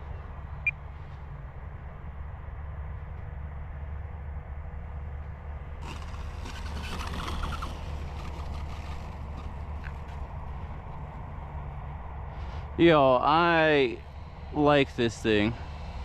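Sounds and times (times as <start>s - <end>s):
model plane motor buzzing: 5.8s - 10.5s, 13.4s - 16.0s.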